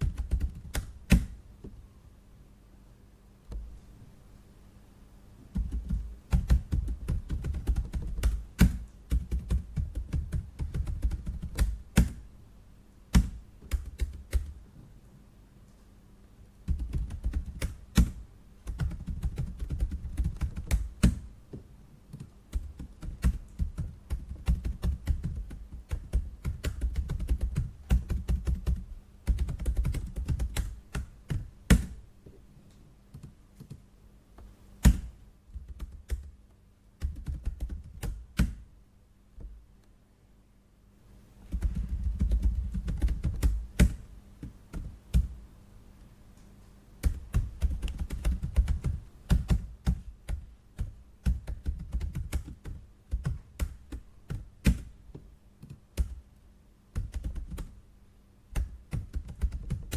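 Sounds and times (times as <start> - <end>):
typing on computer keyboard: 0.0 - 1.3, 5.6 - 12.2, 13.2 - 14.6, 16.7 - 21.2, 22.1 - 32.0, 34.9 - 36.4, 37.0 - 38.6, 41.5 - 45.3, 47.0 - 54.9, 55.6 - 56.2, 57.0 - 57.7, 58.5 - 59.9.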